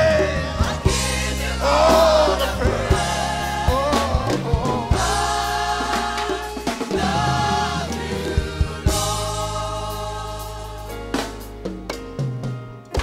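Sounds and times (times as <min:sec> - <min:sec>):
choir singing: 0:00.0 - 0:11.4
keyboard bass and drums: 0:00.0 - 0:13.0.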